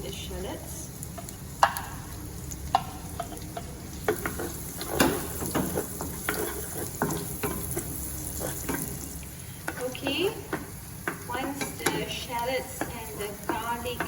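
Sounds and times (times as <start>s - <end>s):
garlic sizzling in hot oil: 0.0s - 14.0s
utensil scraping a pan: 4.0s - 10.7s.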